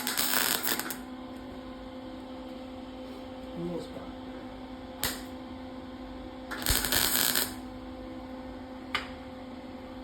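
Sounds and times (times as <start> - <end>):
welder crackling: 0.0 - 1.1, 5.0 - 5.3, 6.5 - 7.7.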